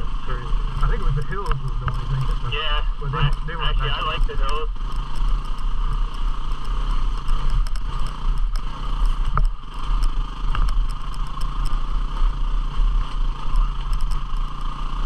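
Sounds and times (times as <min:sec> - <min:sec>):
motorcycle engine running: 0:00.0 - 0:15.0
clicks and knocks from bike: 0:04.4 - 0:11.8, 0:13.4 - 0:14.6.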